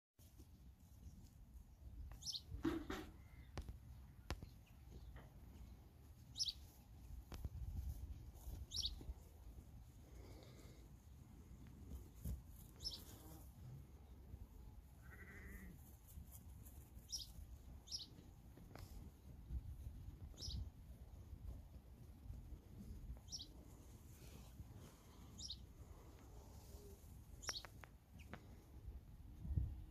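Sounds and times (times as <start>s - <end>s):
small bird chirping: 2.2s - 2.5s, 6.3s - 6.8s, 8.7s - 9.0s, 12.7s - 13.4s, 17.0s - 18.2s, 20.3s - 20.7s, 23.2s - 23.5s, 25.4s - 25.6s, 26.8s - 28.4s
wind rumble on microphone: 29.2s - 29.9s.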